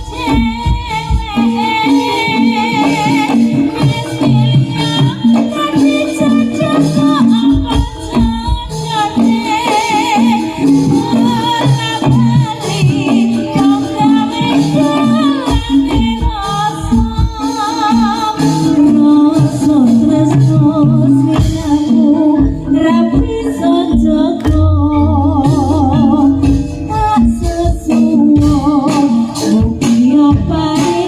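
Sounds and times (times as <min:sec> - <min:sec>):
drums: 0:00.0 - 0:31.0
low pitched percussion pattern: 0:00.0 - 0:31.0
high wavering melody: 0:18.6 - 0:29.4.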